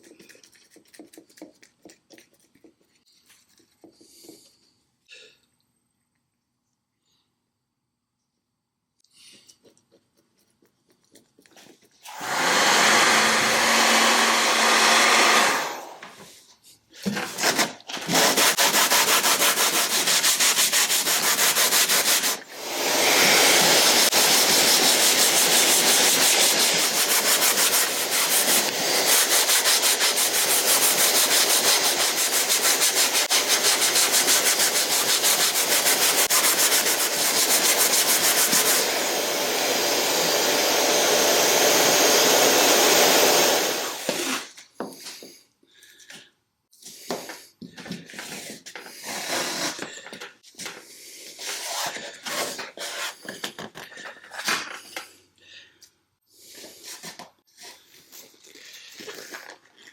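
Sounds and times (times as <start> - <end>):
sanding rasp: 18.1 - 38.9.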